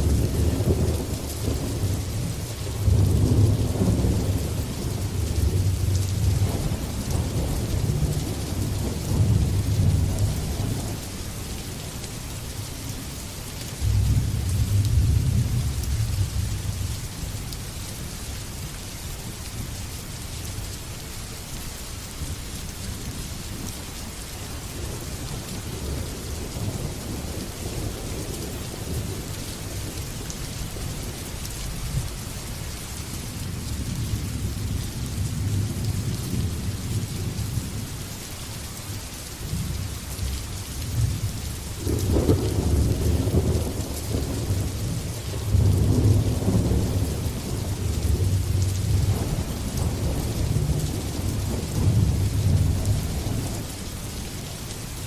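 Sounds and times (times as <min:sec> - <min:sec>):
steady rain hissing: 0:00.0 - 0:55.0
thunder rumbling: 0:40.9 - 0:53.8.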